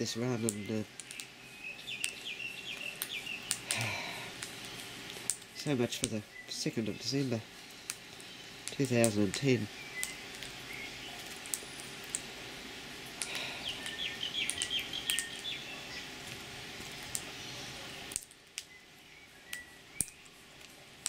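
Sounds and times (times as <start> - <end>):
small birds chirping: 0.0 - 21.0
steady background hum: 0.0 - 21.0
sharp clicks: 13.2 - 15.5.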